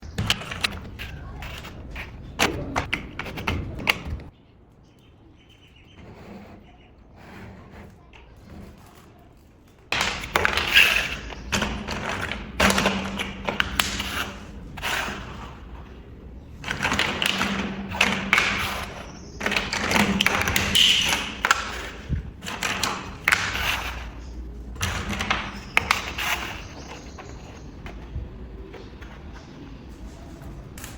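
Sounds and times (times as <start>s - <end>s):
plastic bricks clattering and clicking: 7.8s - 15.8s, 16.6s - 30.9s.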